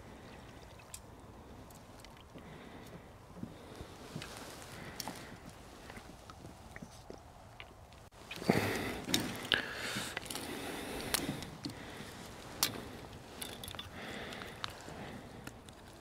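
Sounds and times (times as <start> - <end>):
handling rustling with clicks: 9.1 - 16.0.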